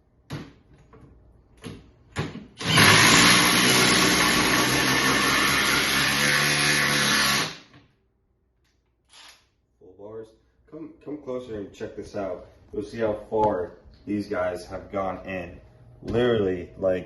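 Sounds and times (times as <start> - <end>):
impact driver driving screw into wood: 2.2 - 7.8.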